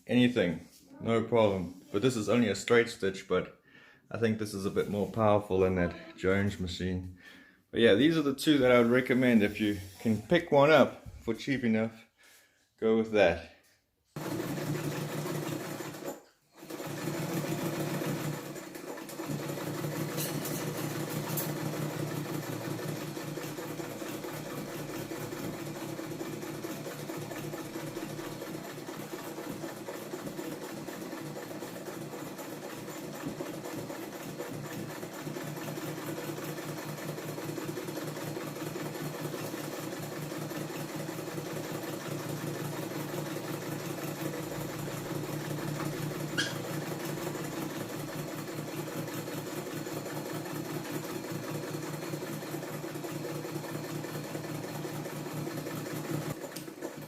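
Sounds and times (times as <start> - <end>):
sewing machine running: 14.2 - 57.0.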